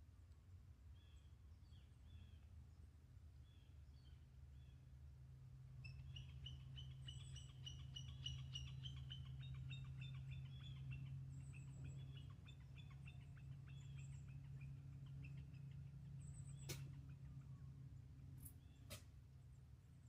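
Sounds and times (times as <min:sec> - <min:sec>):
faint low hum: 0:00.0 - 0:20.0
small birds chirping: 0:05.8 - 0:20.0.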